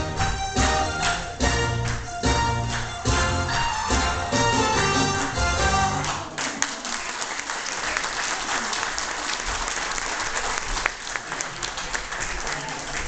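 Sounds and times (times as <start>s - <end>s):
band playing: 0.0s - 6.4s
audience applauding: 4.7s - 13.0s.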